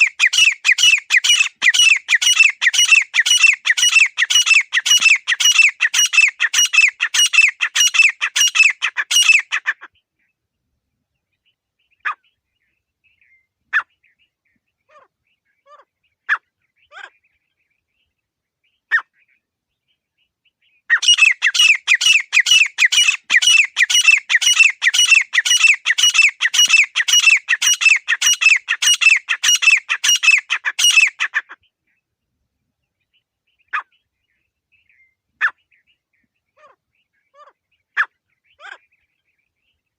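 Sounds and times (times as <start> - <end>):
francolin calling: 0.0 - 9.8, 20.9 - 31.5.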